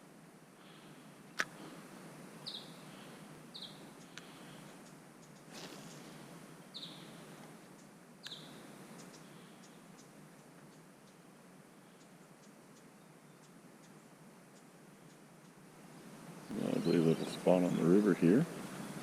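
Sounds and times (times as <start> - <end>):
faint background noise: 0.0 - 19.0
bird chirping high: 2.4 - 2.9, 6.7 - 7.1, 8.2 - 9.8, 16.5 - 18.1.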